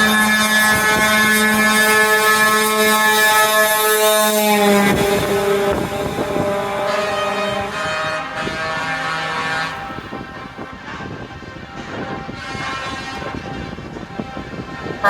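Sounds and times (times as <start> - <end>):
truck air horn: 0.0 - 15.0
trucks driving past: 0.0 - 15.0.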